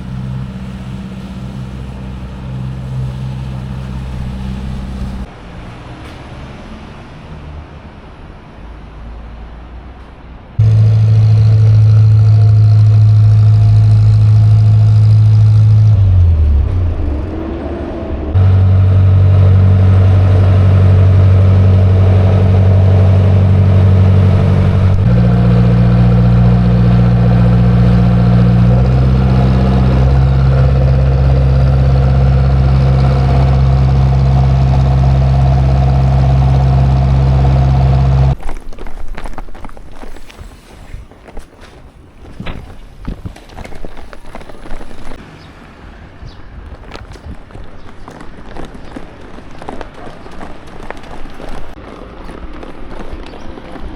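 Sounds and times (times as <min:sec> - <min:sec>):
ferry diesel engine running: 0:00.0 - 0:05.4, 0:10.6 - 0:38.4.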